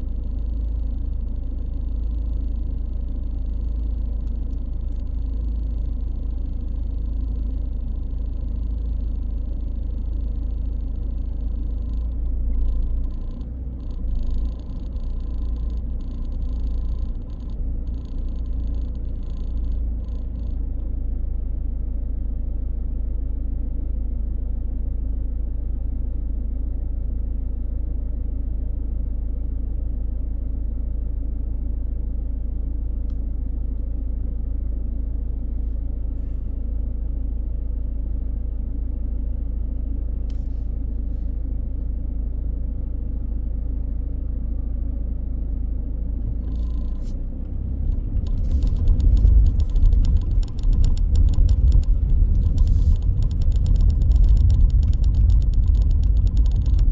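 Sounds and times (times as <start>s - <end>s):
car engine and road noise: 0.0s - 56.9s
rapid rattling: 47.9s - 56.9s.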